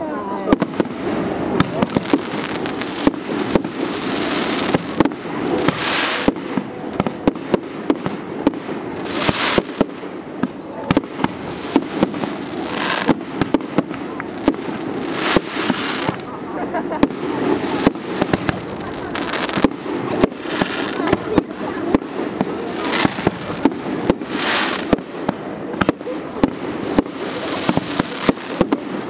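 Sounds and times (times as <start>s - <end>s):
fireworks bangs and pops: 0.0s - 29.0s
rushing hissing noise: 7.1s - 29.0s.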